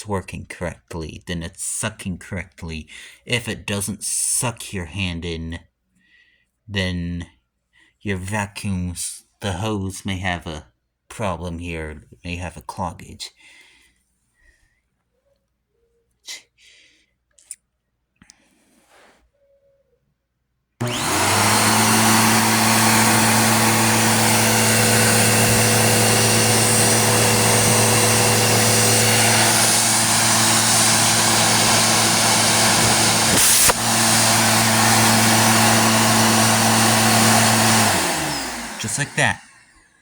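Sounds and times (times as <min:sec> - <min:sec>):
vacuum cleaner motor running: 0:20.8 - 0:39.7
air rushing through hose: 0:23.1 - 0:35.2.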